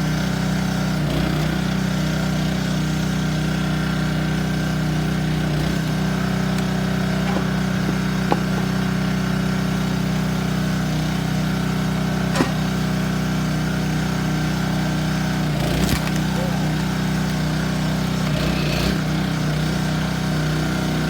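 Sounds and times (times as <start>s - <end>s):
small engine running: 0.0s - 21.0s
short sharp knocks: 12.3s - 12.7s.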